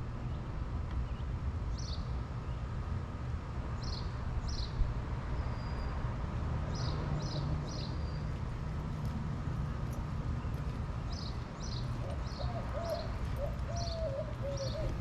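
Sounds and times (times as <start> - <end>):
low mechanical hum: 0.0 - 15.0
small birds chirping: 6.7 - 15.0.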